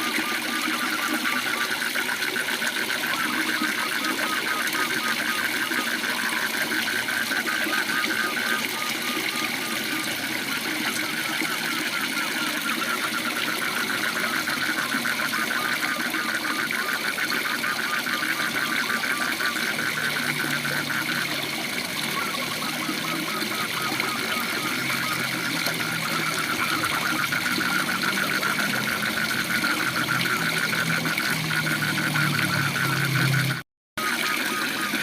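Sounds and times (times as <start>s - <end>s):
frogs trilling in chorus: 0.0s - 35.0s.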